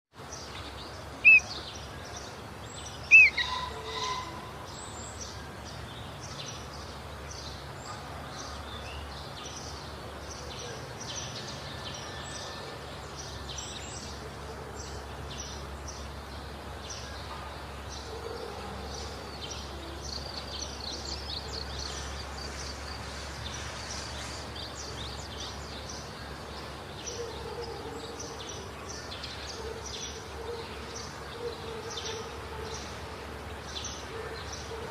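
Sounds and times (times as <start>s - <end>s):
bulbuls calling with whistled calls: 1.2s - 1.7s, 3.0s - 4.6s
faint high bird chirps: 1.2s - 1.7s, 3.1s - 5.0s.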